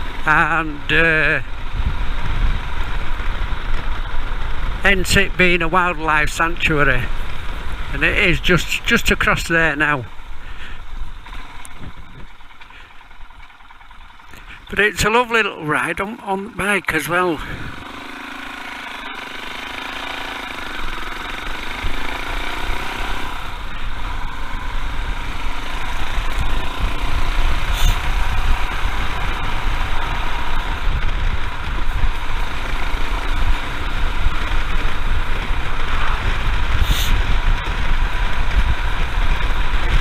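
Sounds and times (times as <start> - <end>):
wind noise on microphone: 0.0 - 9.4, 10.2 - 12.5, 17.4 - 18.0, 21.6 - 40.0
motorcycle engine running: 0.0 - 40.0.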